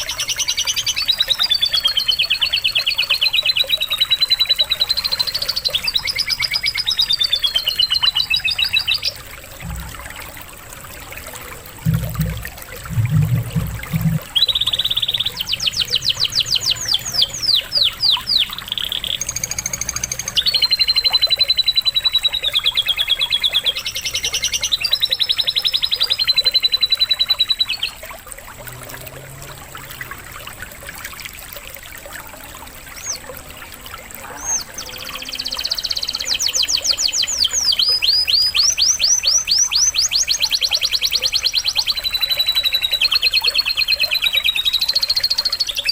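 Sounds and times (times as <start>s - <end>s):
canary song trills and whistles: 0.0s - 10.5s, 11.9s - 28.3s, 32.2s - 45.9s
running water trickle: 0.0s - 45.9s
low thumps: 9.6s - 10.2s, 11.8s - 14.4s.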